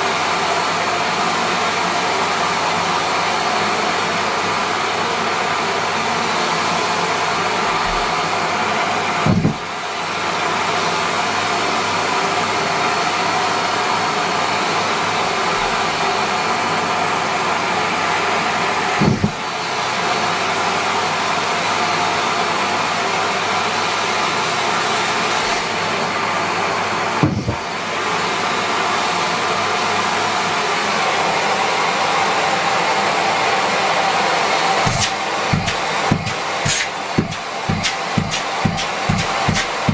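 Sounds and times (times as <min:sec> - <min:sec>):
vacuum cleaner running: 0:00.0 - 0:39.9
low thump in vacuum nozzle: 0:09.2 - 0:09.7, 0:19.0 - 0:19.4, 0:27.2 - 0:27.6, 0:34.9 - 0:39.9.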